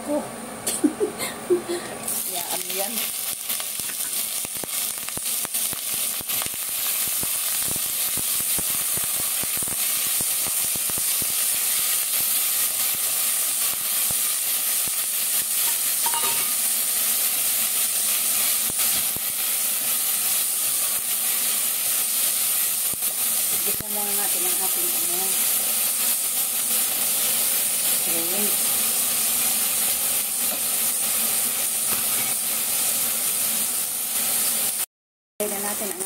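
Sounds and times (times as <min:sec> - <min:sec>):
seafood sizzling in hot oil: 0:02.0 - 0:36.0
spatula scraping pan: 0:31.9 - 0:32.4.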